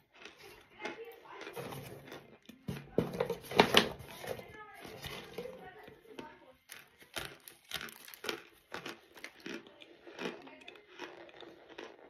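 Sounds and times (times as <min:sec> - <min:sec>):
crunchy chewing: 0:00.0 - 0:03.0, 0:06.1 - 0:12.0.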